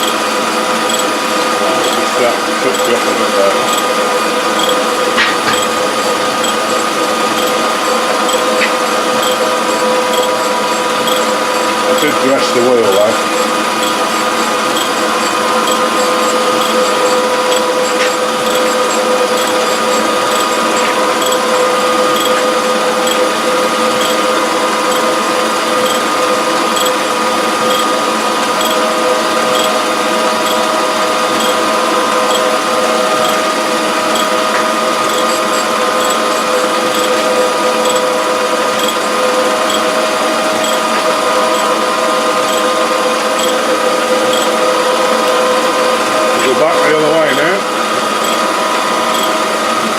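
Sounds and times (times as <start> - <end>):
faint regular ticking: 0.0 - 0.2, 0.9 - 1.2, 1.8 - 3.0, 3.6 - 4.0, 4.6 - 4.8, 5.4 - 5.8, 6.4 - 6.7, 7.3 - 9.5, 10.1 - 21.5, 22.1 - 22.4, 23.0 - 23.3, 24.0 - 24.3, 25.8 - 26.0, 26.8 - 27.0, 27.7 - 27.9, 28.6 - 28.8, 29.5 - 29.8, 30.4 - 30.6, 31.4 - 31.6, 32.3 - 32.5, 33.2 - 33.4, 34.1 - 34.4, 35.0 - 36.3, 36.9 - 37.2, 37.8 - 38.1, 38.8 - 39.0, 40.6 - 40.8, 42.5 - 42.7, 43.4 - 43.6, 44.3 - 44.5, 48.2 - 48.4, 49.1 - 49.3
second steady tone: 0.0 - 0.2, 0.9 - 1.1, 1.8 - 3.9, 4.6 - 4.9, 5.5 - 5.8, 6.4 - 6.6, 7.4 - 7.6, 8.3 - 8.6, 9.2 - 11.3, 11.9 - 13.1, 14.8 - 15.0, 15.6 - 21.5, 22.1 - 22.4, 23.0 - 23.3, 24.0 - 24.2, 25.8 - 26.0, 26.8 - 27.0, 27.7 - 27.9, 29.5 - 29.8, 31.4 - 31.6, 36.0 - 36.2, 36.9 - 37.2, 37.8 - 38.1, 38.8 - 39.0, 40.6 - 40.8, 42.5 - 42.7, 43.4 - 43.6, 44.3 - 44.5, 48.2 - 48.4
grinder motor hum and whine: 0.0 - 49.9.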